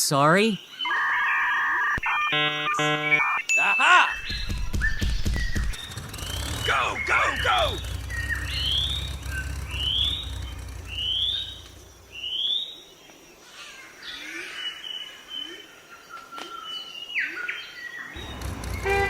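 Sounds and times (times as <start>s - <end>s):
bird chirping: 3.8s - 13.0s, 14.9s - 19.0s
low hum: 5.4s - 12.4s, 18.2s - 19.0s.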